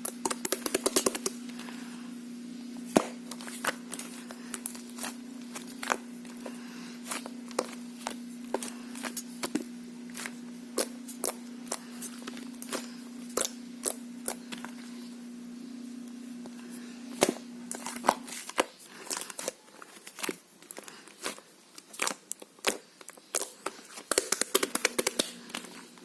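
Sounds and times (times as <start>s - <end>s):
steady low hum: 0.0s - 21.8s
slime clicking and popping: 24.1s - 25.3s.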